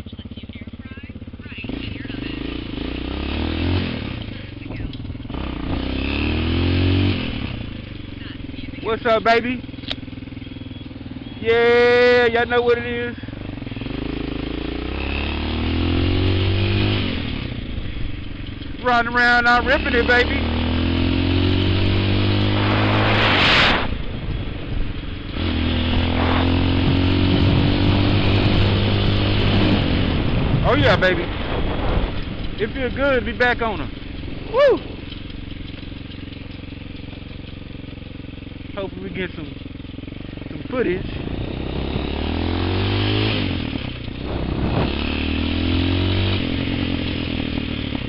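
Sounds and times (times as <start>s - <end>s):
dirt bike engine running: 0.0s - 48.0s
hissing rush: 25.8s - 28.6s.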